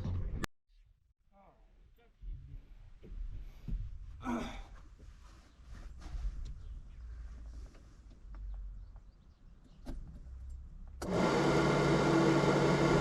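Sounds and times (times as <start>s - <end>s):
electric motor running: 11.0s - 13.0s.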